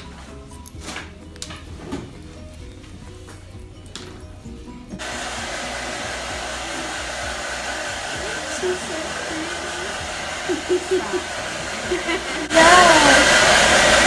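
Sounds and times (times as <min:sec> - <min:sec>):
hair dryer running: 0:05.0 - 0:14.0.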